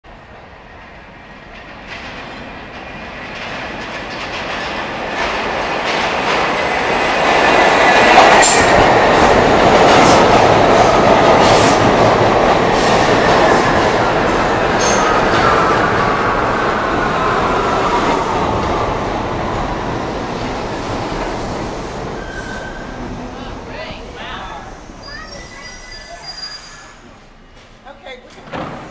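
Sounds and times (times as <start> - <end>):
subway train pulling in: 0.0 - 28.9
high wheel squeal: 22.2 - 23.0, 25.0 - 27.1.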